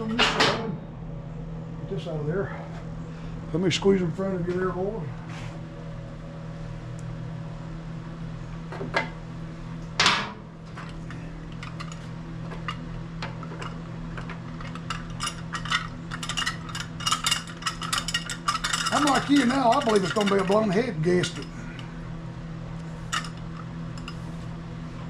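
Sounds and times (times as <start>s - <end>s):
steady low hum: 0.0s - 25.0s
tools and metal parts clinking: 10.0s - 21.9s, 23.0s - 24.3s.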